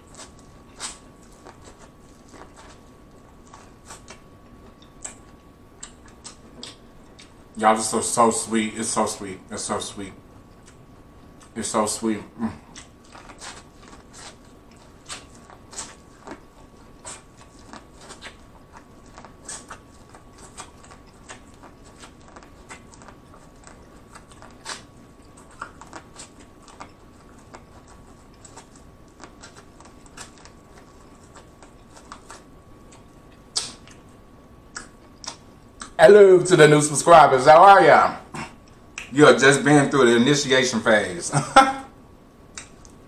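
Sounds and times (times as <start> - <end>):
chewing corn crunches: 0.0 - 7.4, 12.6 - 34.1
wet mouth clicks: 4.8 - 7.3, 33.5 - 34.0, 34.7 - 36.0, 38.6 - 39.1, 42.5 - 43.0.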